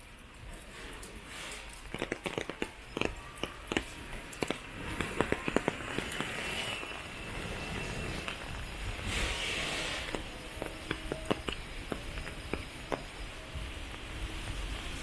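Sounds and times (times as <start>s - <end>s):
rain falling: 0.0s - 15.0s
sharp taps and clicks: 1.8s - 6.3s, 10.1s - 13.1s.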